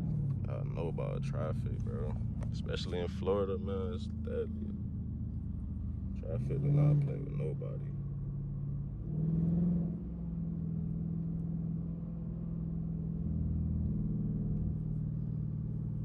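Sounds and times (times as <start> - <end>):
car exhaust deep drone: 0.0 - 16.0.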